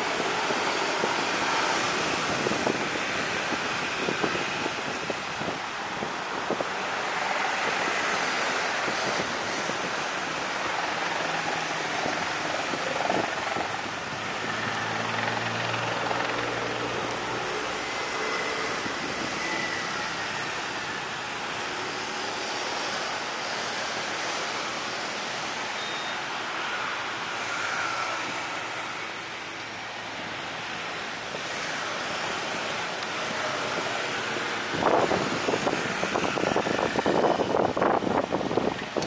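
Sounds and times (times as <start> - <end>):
wind on microphone: 0.0 - 21.0, 31.2 - 39.0
aircraft engine noise: 0.0 - 39.0.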